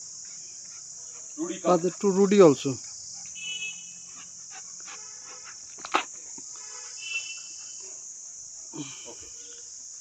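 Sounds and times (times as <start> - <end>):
crickets chirring: 0.0 - 10.0.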